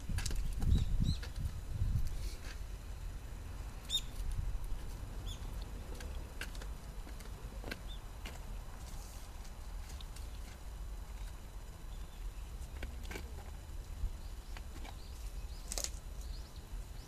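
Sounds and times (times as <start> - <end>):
small bird chirping: 0.3 - 1.6, 3.8 - 4.4, 5.2 - 6.2, 7.8 - 8.1, 11.8 - 12.8, 14.2 - 17.0.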